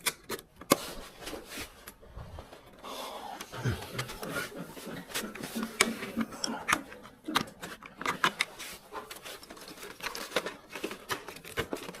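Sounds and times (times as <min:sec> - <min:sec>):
hard plastic parts clicking: 0:05.1 - 0:12.0.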